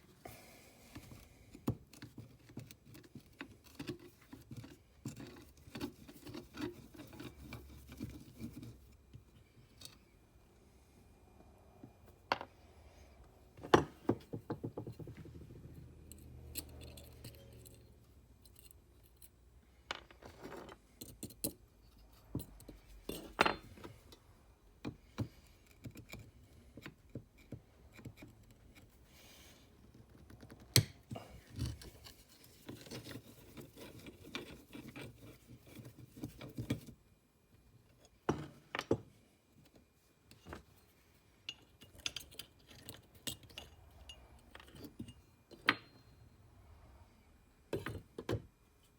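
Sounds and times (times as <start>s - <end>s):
metal parts clicking and clinking: 16.0s - 24.2s, 41.4s - 46.1s.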